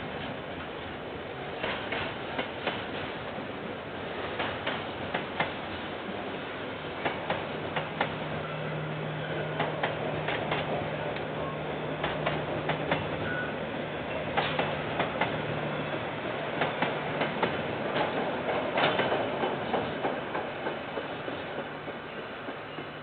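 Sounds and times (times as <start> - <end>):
wheels clacking over rail joints: 7.0 - 13.5, 14.1 - 23.0.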